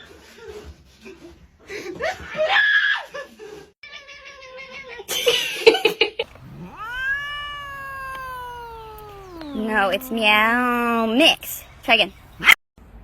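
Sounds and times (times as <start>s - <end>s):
cat meowing: 6.2s - 11.6s.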